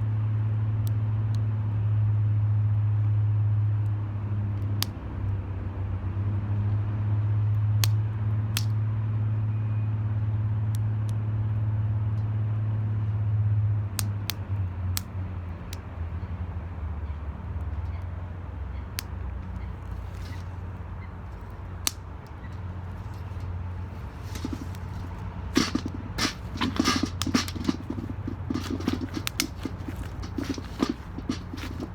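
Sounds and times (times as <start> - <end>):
sharp snaps and pops: 4.6 - 5.0, 7.8 - 8.8, 13.9 - 15.9, 18.9 - 31.9
wood fire crackling: 19.0 - 31.9.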